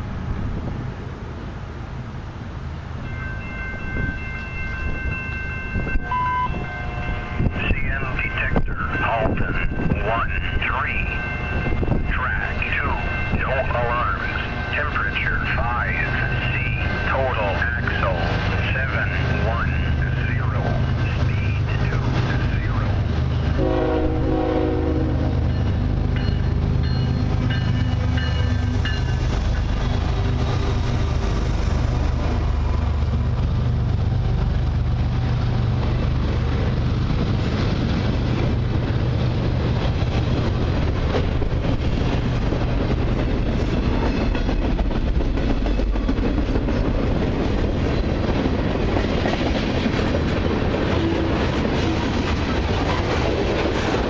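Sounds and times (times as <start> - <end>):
low rumble of train rolling: 0.0 - 54.0
train horn: 5.7 - 7.6, 23.5 - 25.4.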